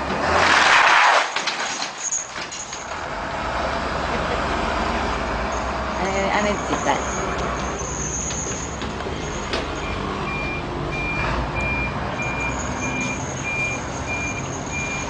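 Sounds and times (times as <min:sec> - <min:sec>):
reversing alarm beeping: 0:06.4 - 0:15.0.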